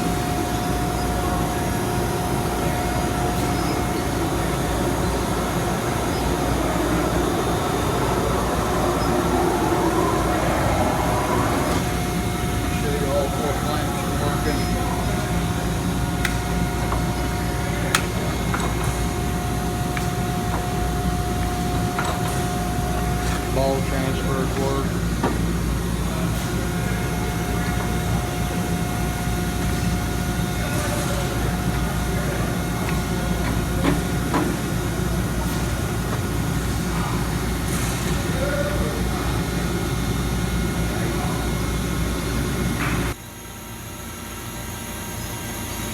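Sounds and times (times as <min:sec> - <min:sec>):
constant mid-pitched tone: 0:00.0 - 0:15.5
laser cutter humming: 0:00.0 - 0:23.2.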